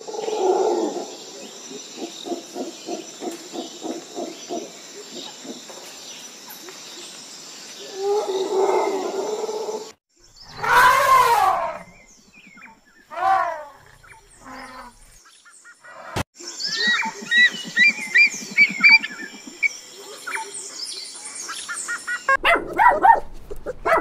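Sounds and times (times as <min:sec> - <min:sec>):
elephant trumpeting: 0:10.6 - 0:11.8.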